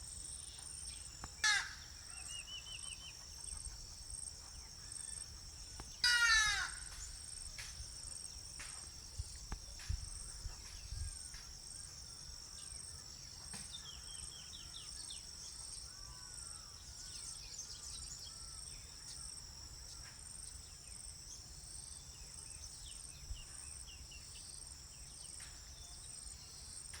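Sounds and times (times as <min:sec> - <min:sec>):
shrill insect chorus: 0:00.0 - 0:27.0
loud harsh bird call: 0:01.4 - 0:02.4, 0:06.0 - 0:07.0.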